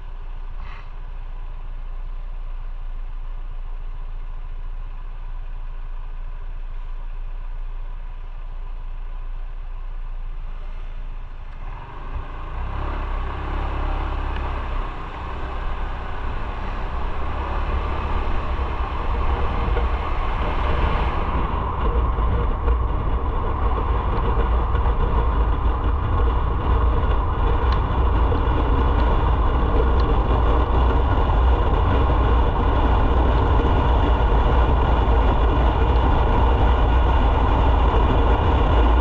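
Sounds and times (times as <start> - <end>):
motorcycle engine rumbling: 0.0 - 39.0
road noise: 0.0 - 39.0
rushing wind: 11.6 - 39.0.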